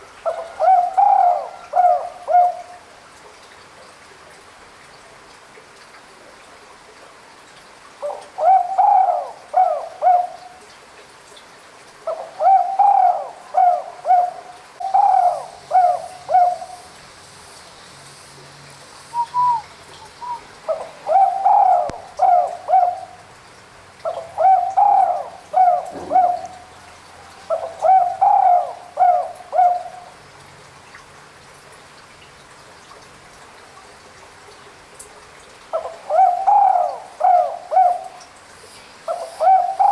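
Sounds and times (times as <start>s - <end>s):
dove cooing: 0.3s - 2.7s, 8.0s - 10.5s, 12.1s - 16.9s, 19.2s - 23.2s, 24.1s - 30.1s, 35.8s - 38.2s, 39.1s - 39.9s.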